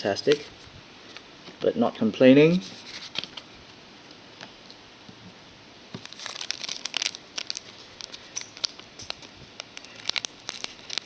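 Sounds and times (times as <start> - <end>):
cards rustling: 6.0 - 11.0
wrapper crinkling: 6.0 - 11.0.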